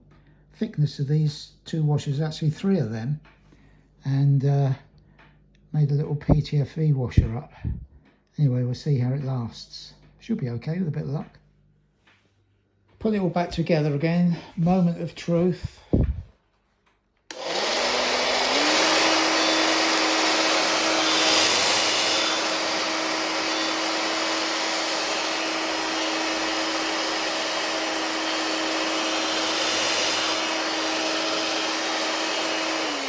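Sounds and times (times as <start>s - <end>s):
hairdryer motor whine: 14.7s - 16.2s, 17.3s - 33.0s
rush of air: 15.7s - 16.3s.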